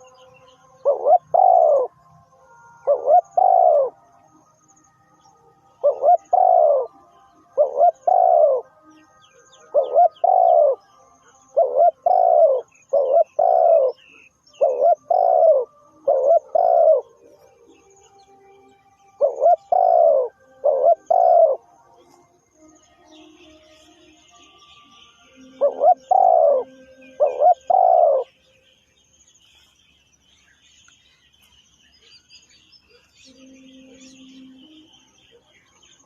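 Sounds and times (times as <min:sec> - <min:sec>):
faint bird chirps: 0:00.0 - 0:36.0
dove cooing: 0:00.8 - 0:01.9, 0:02.8 - 0:04.0, 0:05.8 - 0:06.9, 0:07.5 - 0:08.7, 0:09.5 - 0:10.8, 0:11.5 - 0:17.7, 0:19.2 - 0:22.3, 0:25.5 - 0:28.3.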